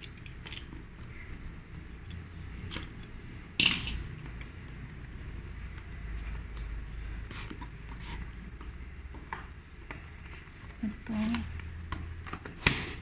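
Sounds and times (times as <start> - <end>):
packaging clicks and rustles: 0.0 - 3.2, 8.4 - 13.0.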